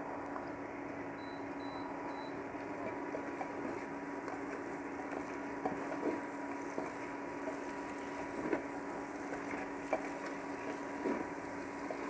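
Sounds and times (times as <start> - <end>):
steady low hum: 0.0 - 12.0
faint high beeps: 1.2 - 2.4
masala frying: 2.4 - 12.0.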